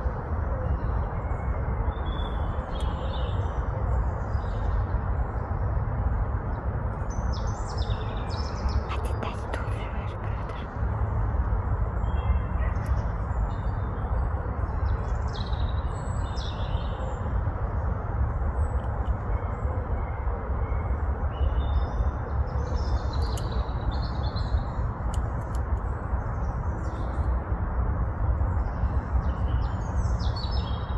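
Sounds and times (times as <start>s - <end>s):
low background rumble: 0.0s - 30.9s
small birds chirping: 21.4s - 27.3s.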